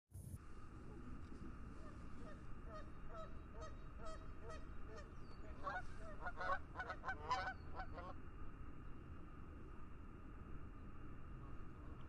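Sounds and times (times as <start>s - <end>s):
geese honking: 1.7s - 8.2s.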